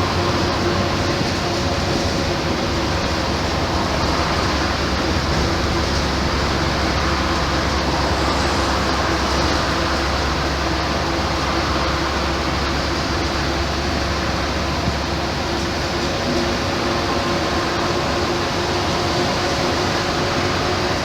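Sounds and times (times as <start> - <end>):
bus diesel engine running: 0.0 - 21.0.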